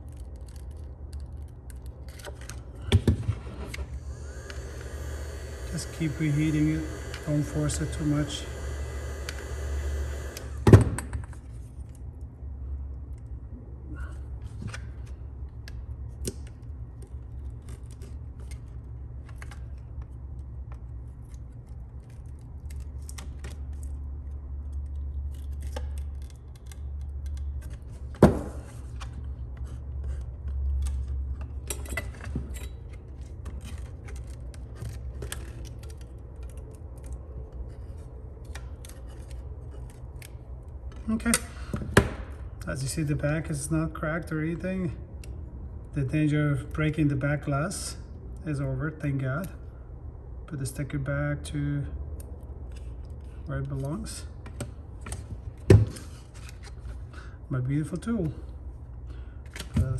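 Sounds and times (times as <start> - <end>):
tape and plastic crackling: 0.0 - 2.9, 14.4 - 31.6, 32.7 - 41.6
steady low hum: 0.0 - 59.9.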